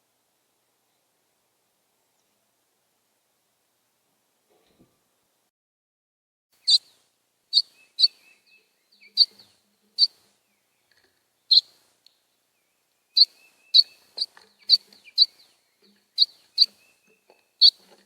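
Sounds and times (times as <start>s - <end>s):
bird chip calls: 6.6s - 11.8s, 13.1s - 17.8s.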